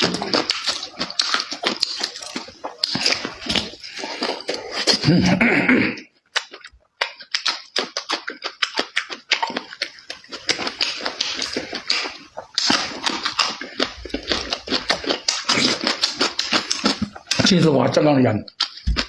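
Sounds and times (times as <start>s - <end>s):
wet chewing and lip-smacking: 0.0s - 5.4s, 6.0s - 19.0s
person murmuring: 0.0s - 6.1s.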